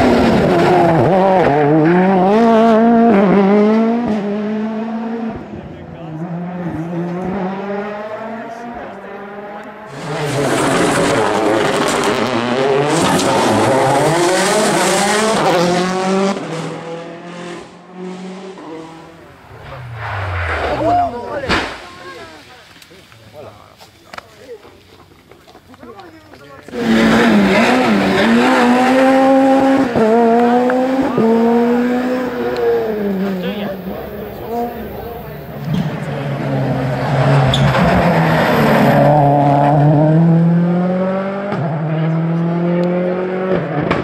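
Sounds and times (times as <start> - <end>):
rally car engine passing: 0.0 - 22.8, 26.7 - 44.0.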